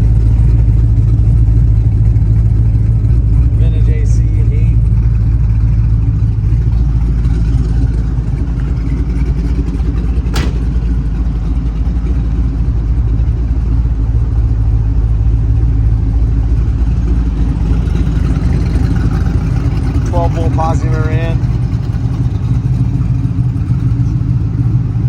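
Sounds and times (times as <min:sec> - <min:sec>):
engine idling low rumble: 0:00.0 - 0:25.0
sharp click: 0:10.4 - 0:10.7.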